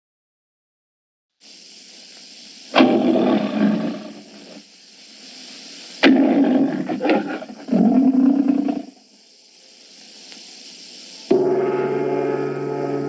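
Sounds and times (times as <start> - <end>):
old film soundtrack hiss: 1.4 - 13.0
loud roars: 2.8 - 4.6, 6.0 - 8.9.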